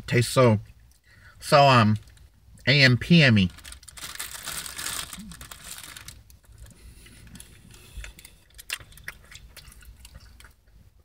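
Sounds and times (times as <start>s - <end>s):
person chewing food: 6.5s - 10.8s.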